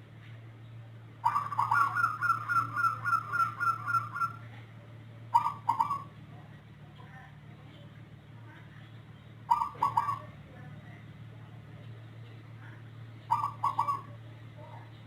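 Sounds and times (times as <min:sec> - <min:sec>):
low steady hum: 0:00.0 - 0:15.0
dove cooing: 0:01.2 - 0:04.4, 0:05.3 - 0:06.1, 0:09.5 - 0:10.3, 0:13.3 - 0:14.2.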